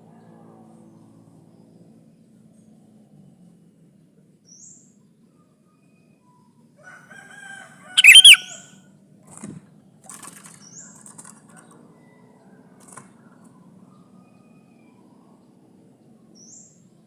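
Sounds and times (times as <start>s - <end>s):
bird calling: 8.0s - 8.6s.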